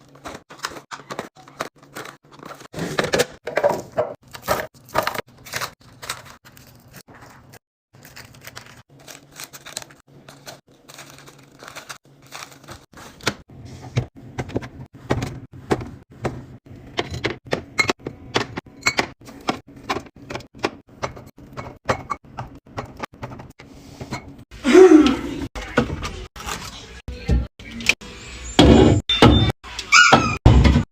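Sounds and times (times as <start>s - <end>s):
containers knocking and clattering in fridge: 0.0s - 6.3s, 10.9s - 24.4s.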